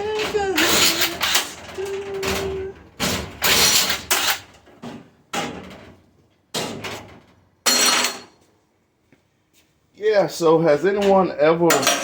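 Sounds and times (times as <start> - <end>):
metal clanking and scraping: 0.0 - 8.4.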